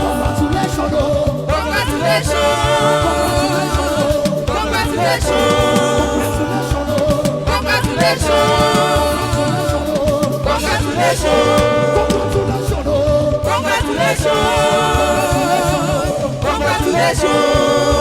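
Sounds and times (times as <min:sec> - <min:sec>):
gospel choir singing: 0:00.0 - 0:18.0
steady bass line: 0:00.0 - 0:18.0.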